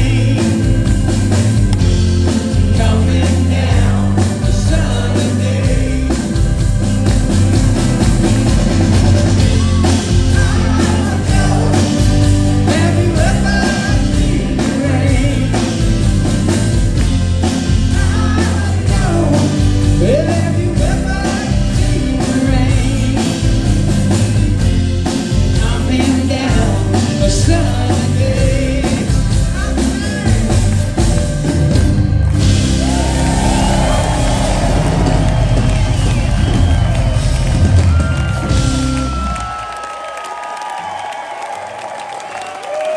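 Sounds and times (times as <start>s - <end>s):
lead singer singing: 0.0s - 6.8s, 9.4s - 16.6s, 17.4s - 23.9s, 25.4s - 31.0s
drum kit: 0.0s - 39.9s
electric guitars: 0.0s - 39.9s.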